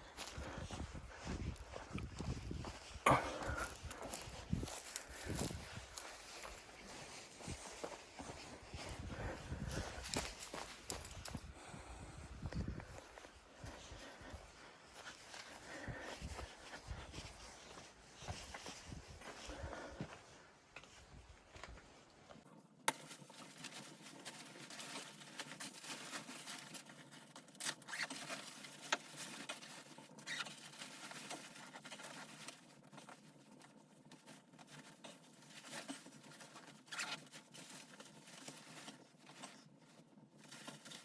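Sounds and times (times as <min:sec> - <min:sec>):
rustling and crackling: 0:00.0 - 0:11.8, 0:20.9 - 0:41.0.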